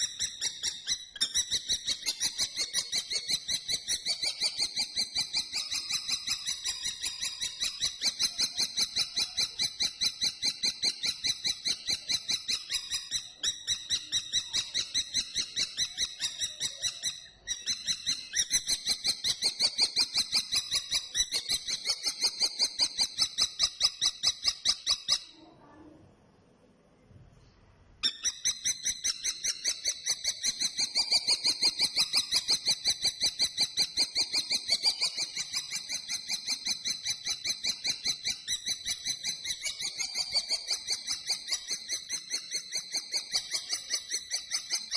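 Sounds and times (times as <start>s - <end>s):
kestrel calling: 0.0s - 25.4s, 28.0s - 44.9s.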